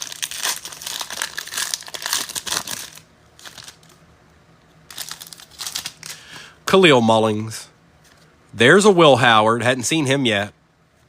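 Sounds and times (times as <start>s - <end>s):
cards rustling: 0.0s - 4.0s, 4.9s - 6.5s
foil wrapper crinkling: 0.0s - 4.0s, 4.9s - 6.3s.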